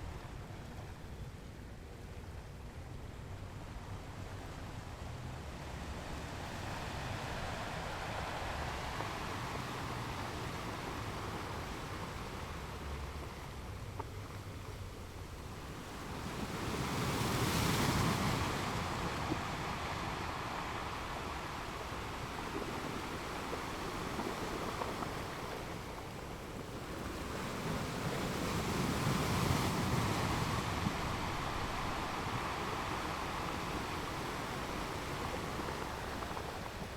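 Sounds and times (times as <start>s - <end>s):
ocean waves breaking on rocks: 5.3s - 36.9s.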